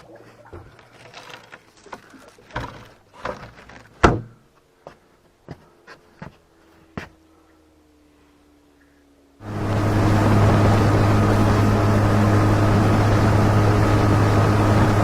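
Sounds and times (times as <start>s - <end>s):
faint steady hum: 0.0s - 15.0s
knocks and thumps against boat: 2.6s - 4.4s.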